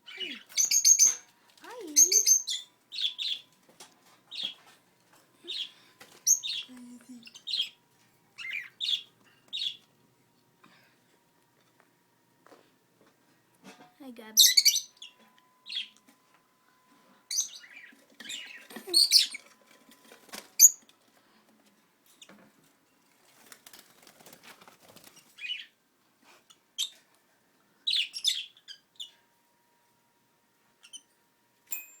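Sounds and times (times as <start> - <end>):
lovebirds chirping: 0.0 - 3.6, 4.3 - 4.7, 5.4 - 7.8, 8.4 - 9.9, 14.3 - 16.0, 17.3 - 19.5.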